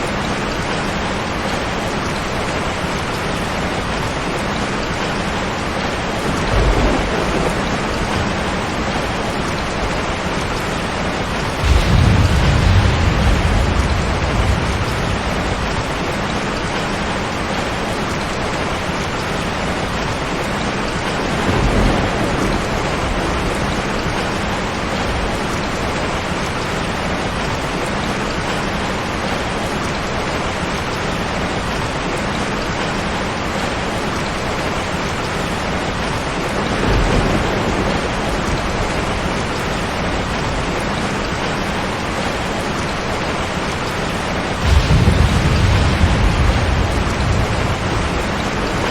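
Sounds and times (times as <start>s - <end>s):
heavy rain: 0.0s - 48.9s
low rumbles: 6.2s - 17.4s, 44.3s - 48.9s.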